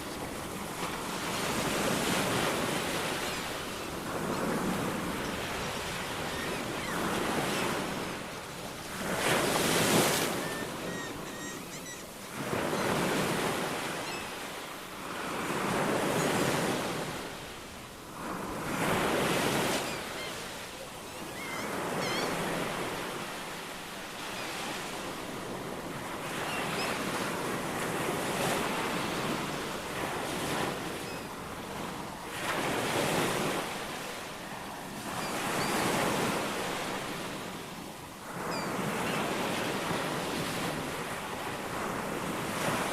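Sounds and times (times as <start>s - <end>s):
waves breaking: 0.0s - 14.2s
faint bird chirps: 10.3s - 12.1s, 19.8s - 22.6s.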